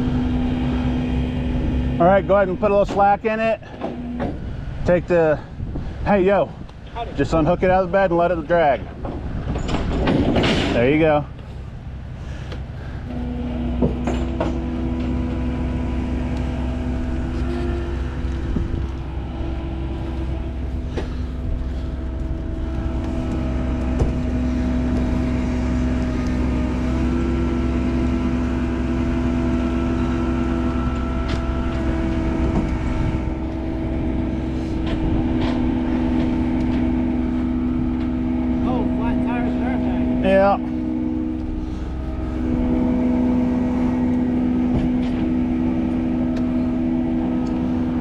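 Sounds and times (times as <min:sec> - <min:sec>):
winch whine: 0:00.0 - 0:07.2, 0:08.2 - 0:48.0
truck engine rumble: 0:00.0 - 0:48.0
metal clanks: 0:08.8 - 0:11.0.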